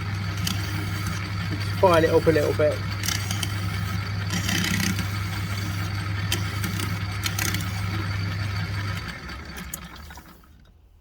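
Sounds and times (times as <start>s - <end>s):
metal lathe running: 0.0s - 9.8s
file scraping metal: 0.4s - 7.8s.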